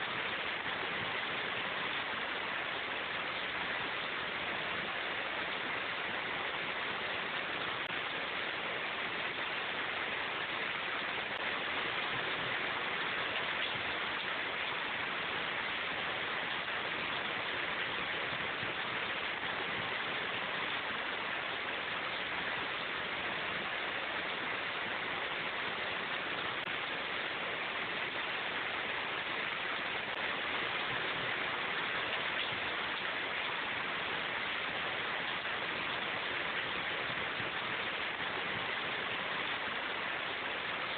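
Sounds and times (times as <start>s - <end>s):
steady rain in a forest: 0.0s - 40.9s.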